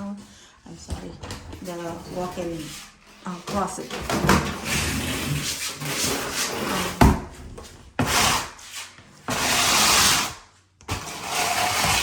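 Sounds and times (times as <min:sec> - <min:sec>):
rubbing and scraping: 0:00.8 - 0:12.0.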